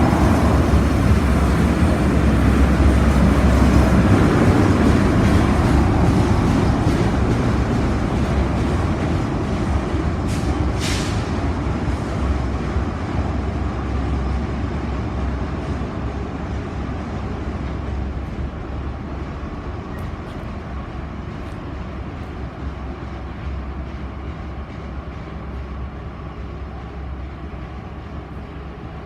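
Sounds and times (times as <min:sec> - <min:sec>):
freight train rumbling on rails: 0:00.0 - 0:29.0
short hiss: 0:10.3 - 0:11.3.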